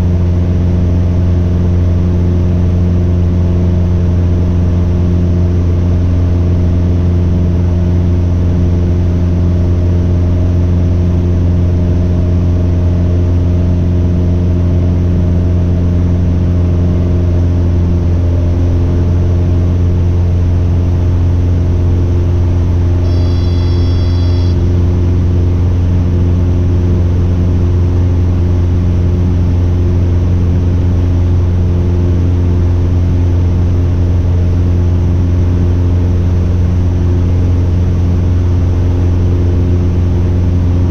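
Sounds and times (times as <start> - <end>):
airplane engine and propeller drone: 0.0 - 40.9
short high electronic tone: 23.0 - 24.9.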